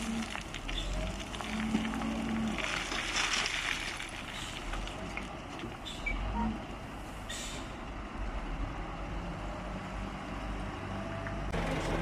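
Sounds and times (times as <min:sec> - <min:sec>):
soil being loaded: 0:00.0 - 0:05.8
loader diesel engine running: 0:04.1 - 0:12.0.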